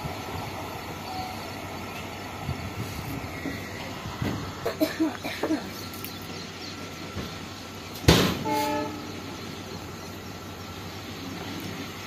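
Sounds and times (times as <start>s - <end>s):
train running on rails: 0.0s - 12.0s
loud thump: 8.1s - 8.5s
train horn blast: 8.4s - 9.2s.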